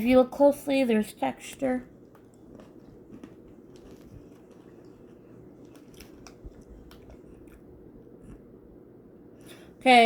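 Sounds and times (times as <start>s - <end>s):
biscuit stick crunching: 2.0s - 7.7s.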